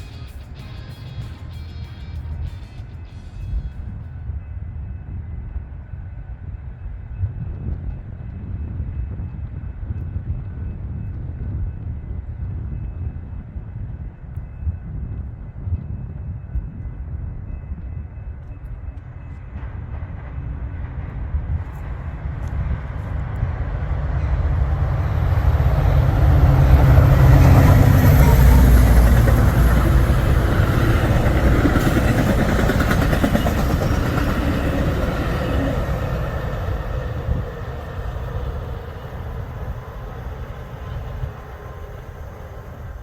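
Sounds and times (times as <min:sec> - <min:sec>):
train rumbling past: 0:00.0 - 0:43.0.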